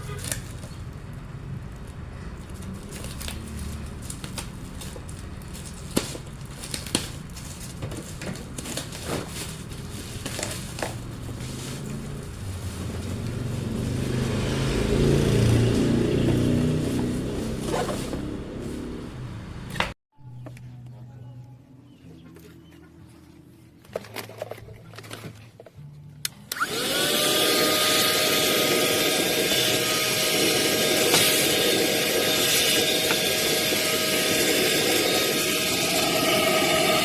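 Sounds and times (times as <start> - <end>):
handheld vacuum cleaner running: 26.5 - 37.0.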